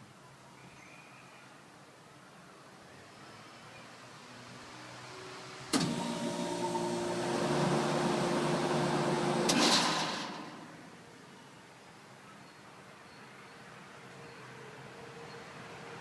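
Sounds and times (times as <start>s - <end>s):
air conditioner humming: 5.8s - 11.1s.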